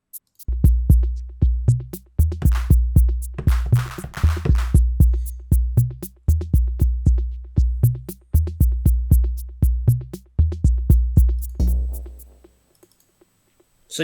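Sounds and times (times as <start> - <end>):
sharp percussion ticks: 0.0 - 1.0, 2.2 - 6.9, 10.9 - 13.1
drum machine kick drums: 0.4 - 12.6.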